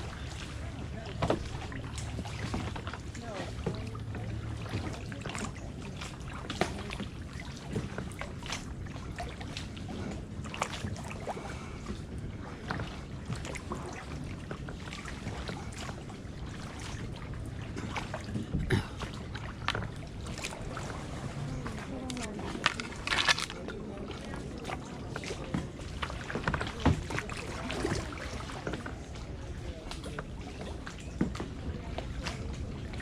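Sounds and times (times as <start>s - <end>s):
water splashing and dripping: 0.0s - 33.0s
paddle knocking against hull: 0.3s - 21.0s.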